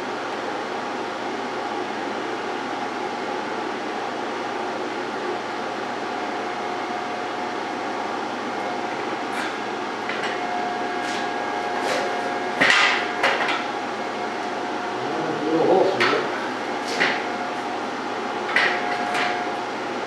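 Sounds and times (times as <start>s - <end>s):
steady hum: 0.0s - 20.0s
knocks and clanks on metal: 11.9s - 13.7s, 18.5s - 19.4s.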